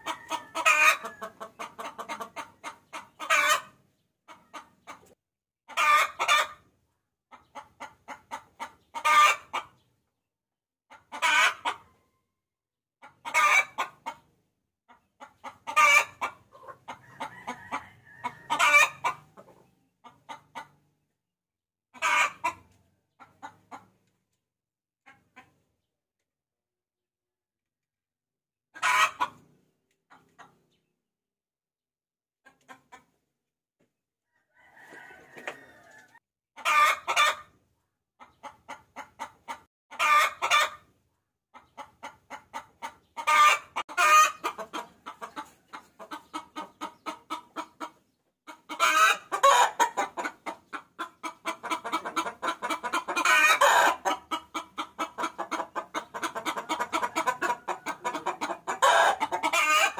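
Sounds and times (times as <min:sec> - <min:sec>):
hen cackling: 0:00.0 - 0:06.6, 0:07.3 - 0:09.7, 0:10.9 - 0:11.9, 0:13.0 - 0:14.2, 0:15.2 - 0:20.8, 0:21.9 - 0:23.9, 0:28.8 - 0:29.4, 0:34.5 - 0:37.5, 0:38.2 - 0:40.8, 0:41.6 - 0:59.9.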